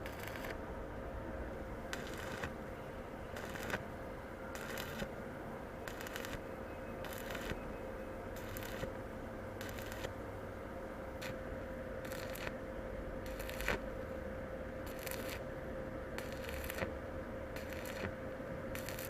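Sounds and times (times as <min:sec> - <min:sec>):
welding arc crackling: 0:00.0 - 0:00.6, 0:01.9 - 0:02.6, 0:03.4 - 0:03.8, 0:04.5 - 0:05.1, 0:05.8 - 0:06.4, 0:07.0 - 0:07.6, 0:08.4 - 0:09.0, 0:09.6 - 0:10.1, 0:11.2 - 0:11.4, 0:12.0 - 0:12.6, 0:13.2 - 0:13.9, 0:14.8 - 0:15.5, 0:16.2 - 0:16.9, 0:17.6 - 0:19.0.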